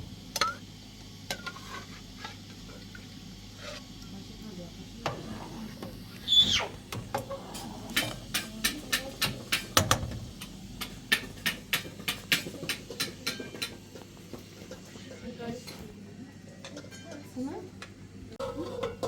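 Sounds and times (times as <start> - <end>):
brief high squeak: 6.2 - 6.7.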